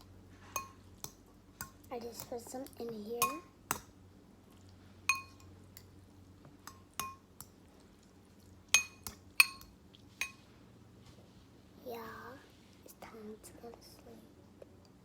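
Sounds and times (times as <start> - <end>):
utensil clinking against bowl: 5.1 - 5.9, 8.7 - 10.4.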